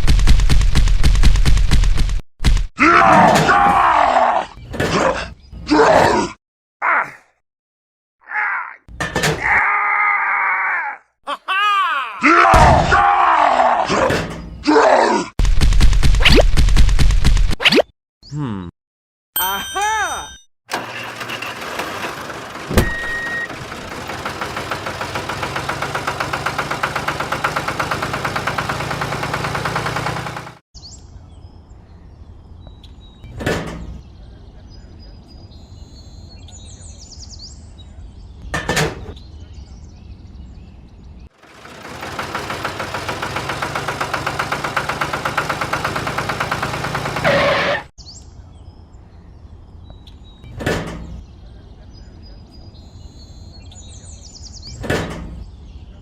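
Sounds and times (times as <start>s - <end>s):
faint bird chirps: 30.8s - 38.5s, 51.2s - 54.8s.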